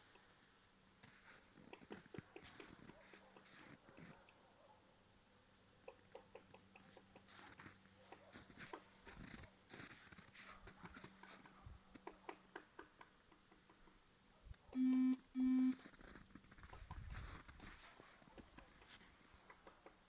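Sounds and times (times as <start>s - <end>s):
short loud beeps: 14.8s - 15.8s.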